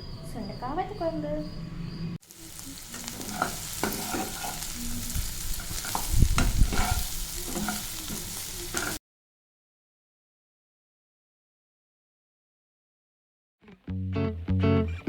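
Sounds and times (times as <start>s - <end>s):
food sizzling in oil: 2.2s - 9.0s.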